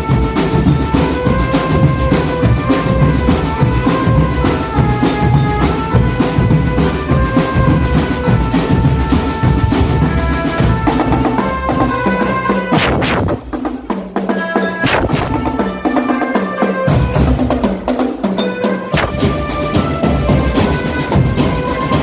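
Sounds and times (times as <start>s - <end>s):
drum band playing: 0.0s - 22.0s
held pitched melody notes: 14.6s - 17.3s.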